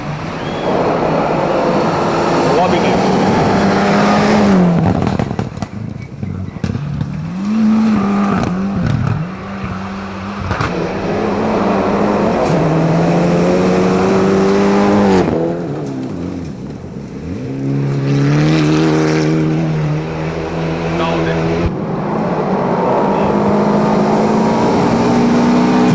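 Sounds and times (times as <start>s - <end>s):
sharp cracks: 0.0s - 17.2s
rally car engine revving: 0.0s - 25.9s.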